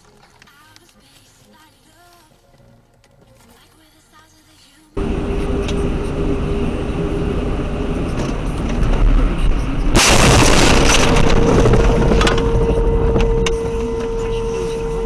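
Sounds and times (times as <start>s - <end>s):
car road and engine noise: 5.0s - 15.0s
car crash impact: 9.9s - 13.7s
steady held tone: 11.9s - 15.0s.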